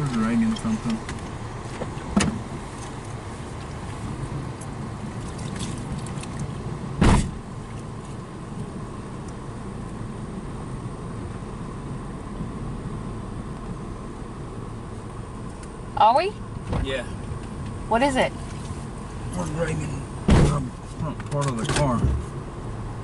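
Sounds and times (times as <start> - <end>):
car rolling with low rumble: 0.0 - 23.0
sharp knocks: 20.3 - 20.7.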